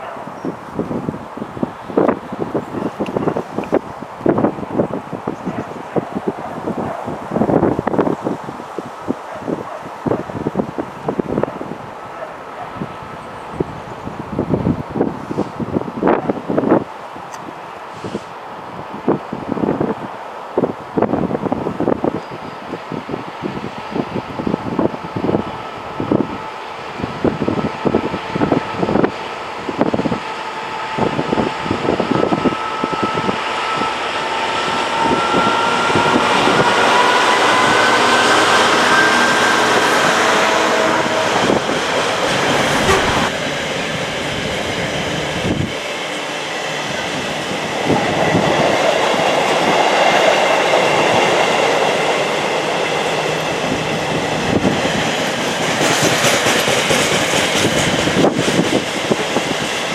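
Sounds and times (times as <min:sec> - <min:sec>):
wheels rumbling on rails: 0:00.0 - 0:59.9
wind buffeting microphone: 0:00.0 - 0:59.9
train whine rising in pitch: 0:22.2 - 0:59.9.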